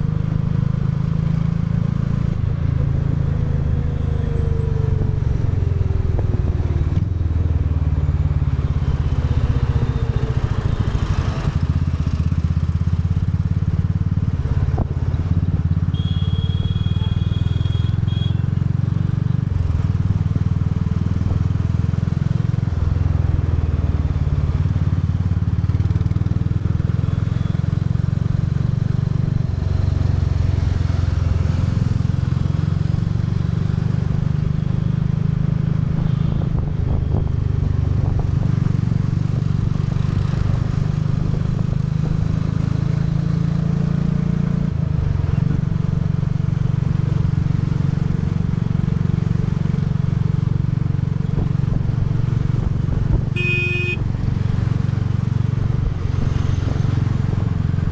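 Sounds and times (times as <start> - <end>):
motorcycle engine running: 0.0 - 57.9
brief high-pitched tone: 53.4 - 54.0.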